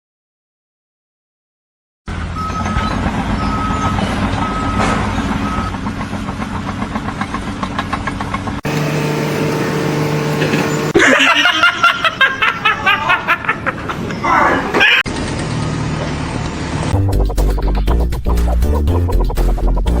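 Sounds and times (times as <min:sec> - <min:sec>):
heavy machine engine running: 0:02.1 - 0:11.0
backup alarm beeping: 0:02.4 - 0:04.8, 0:08.6 - 0:11.0
machine drone: 0:08.6 - 0:11.0.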